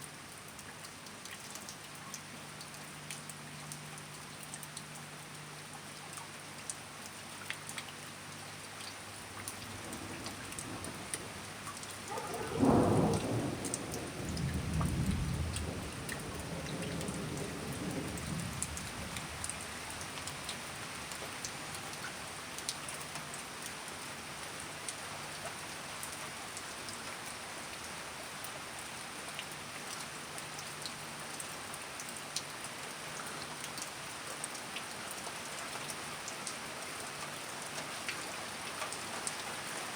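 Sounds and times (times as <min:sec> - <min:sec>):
steady rain: 0:00.0 - 0:39.9
water drips: 0:00.2 - 0:24.1
thunderclap rumbling: 0:09.6 - 0:19.2.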